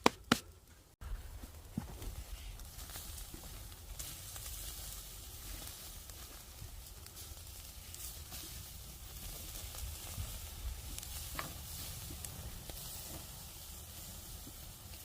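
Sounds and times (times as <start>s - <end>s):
sharp crackles: 1.1s - 15.0s
ribs sizzling over fire: 2.0s - 15.0s.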